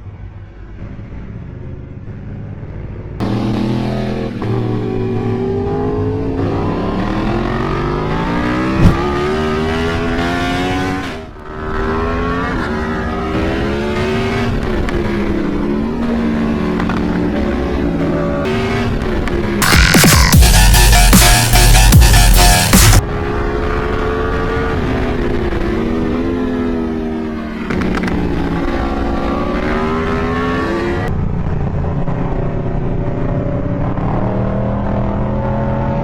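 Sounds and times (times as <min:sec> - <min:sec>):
motorcycle engine accelerating: 0:03.2 - 0:19.6.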